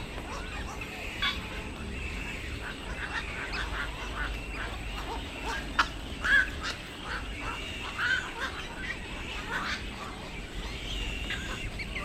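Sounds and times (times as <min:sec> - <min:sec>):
birds chattering: 0:00.0 - 0:12.0.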